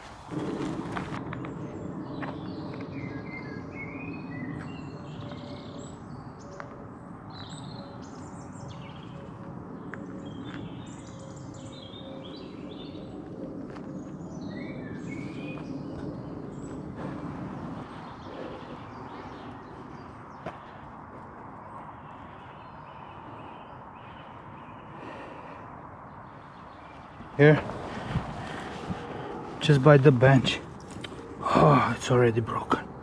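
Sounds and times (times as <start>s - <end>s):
birds singing and chirping: 1.2s - 33.0s
low background rumble: 23.4s - 32.2s.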